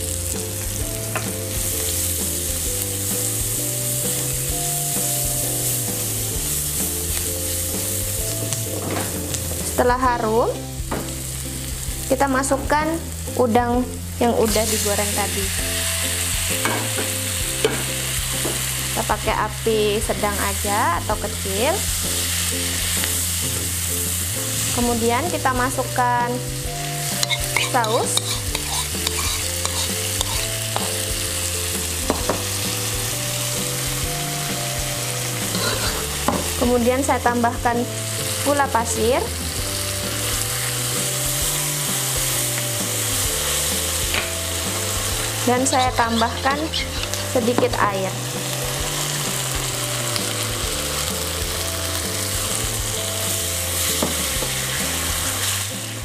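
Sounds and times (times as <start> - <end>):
sauce sizzling in a wok: 0.0 - 56.0
soft background music: 0.0 - 56.0
spatula stirring in wok: 27.0 - 31.1, 34.8 - 36.6, 40.1 - 47.8.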